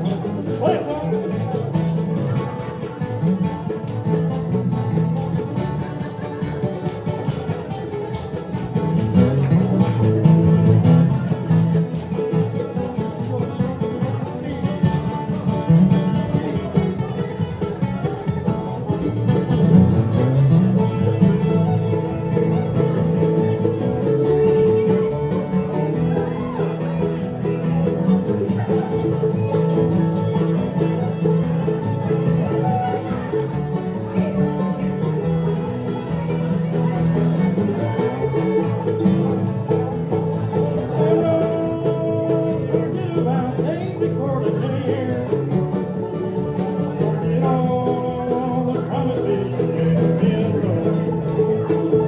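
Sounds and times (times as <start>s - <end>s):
banjo: 0.0s - 52.0s
bluegrass band playing: 0.0s - 52.0s
guitar: 0.0s - 52.0s.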